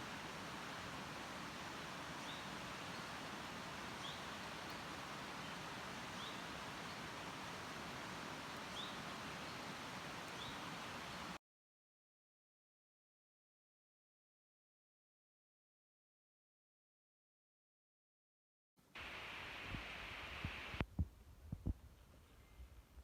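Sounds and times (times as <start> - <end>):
steady hiss: 0.0 - 11.4, 19.0 - 20.9
bird chirping: 4.0 - 7.0, 10.3 - 11.3.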